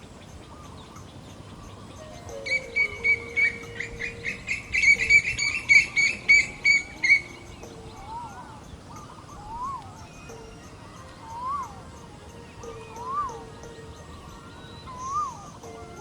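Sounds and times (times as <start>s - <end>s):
bird whistled notes: 0.4s - 16.0s
bird high repeated notes: 2.0s - 12.0s.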